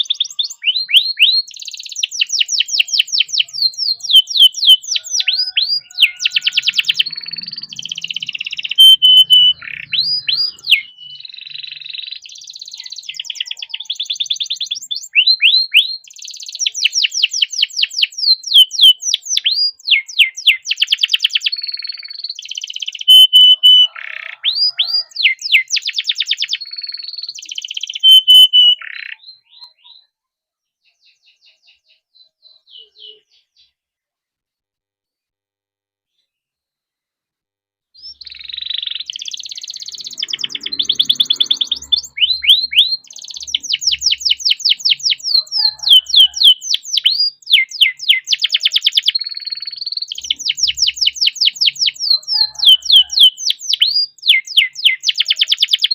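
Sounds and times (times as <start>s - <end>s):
canary singing trills: 0.0s - 30.2s, 30.8s - 33.8s, 38.0s - 55.9s.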